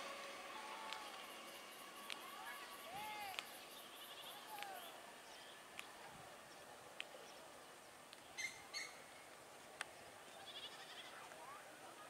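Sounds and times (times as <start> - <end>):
faint bird chirps: 2.3 - 5.6, 6.5 - 9.1.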